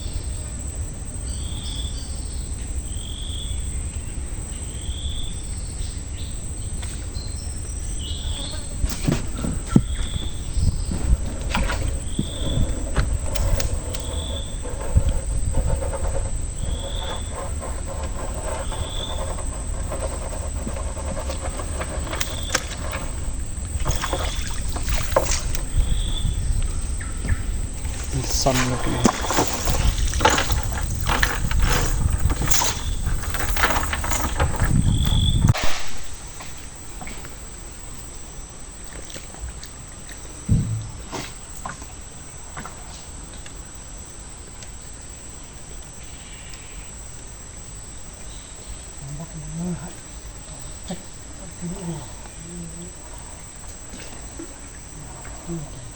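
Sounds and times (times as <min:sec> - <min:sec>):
high-pitched insect chorus: 0:00.0 - 0:55.9
outdoor rumble and hiss: 0:00.0 - 0:55.9
sharp knocks: 0:40.5 - 0:41.4.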